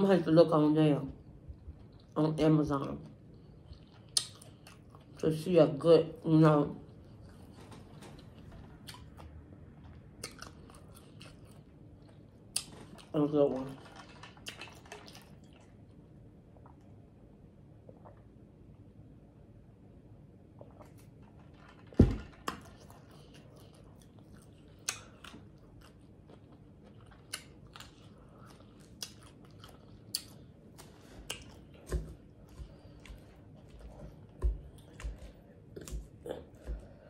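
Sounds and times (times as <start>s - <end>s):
chewing crunches: 8.2s - 13.2s, 22.4s - 37.0s.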